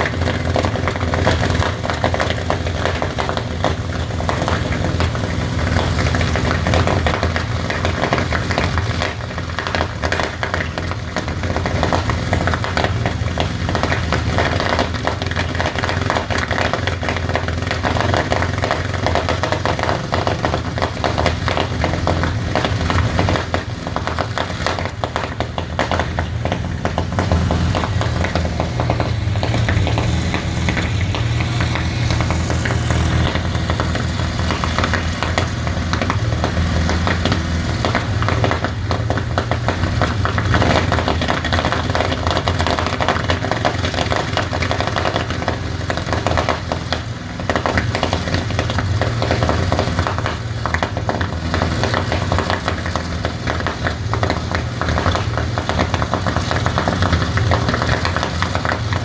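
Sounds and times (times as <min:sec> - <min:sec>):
aero engine running: 0:00.0 - 0:46.3.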